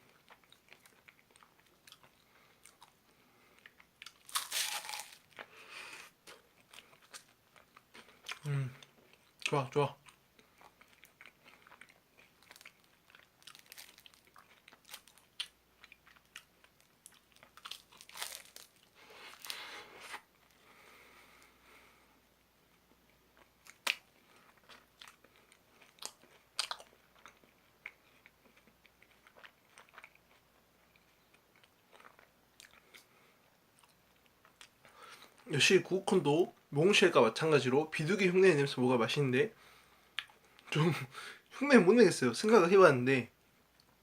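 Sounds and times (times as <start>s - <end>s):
crunching and chewing ice cream cone: 0.0s - 20.6s, 23.2s - 35.5s.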